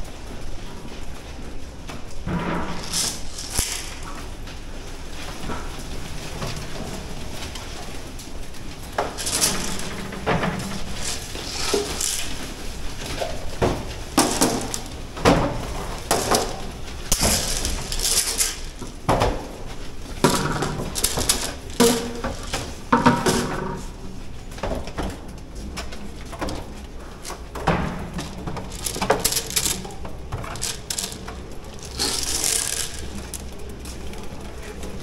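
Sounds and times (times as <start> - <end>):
metal clanking and rattling: 8.8 - 23.9, 26.3 - 34.2.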